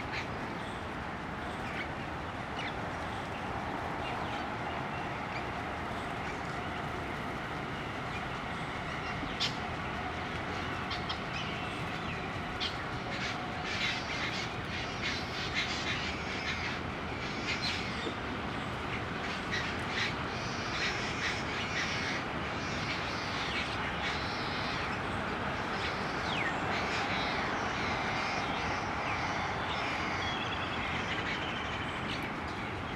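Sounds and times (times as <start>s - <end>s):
steady background hum: 0.0s - 32.9s.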